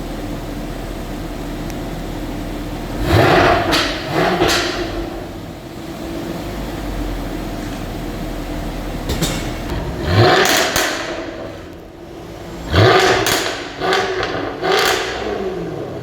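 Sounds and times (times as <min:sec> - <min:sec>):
supercar accelerating hard: 0:02.8 - 0:06.9, 0:09.7 - 0:16.0.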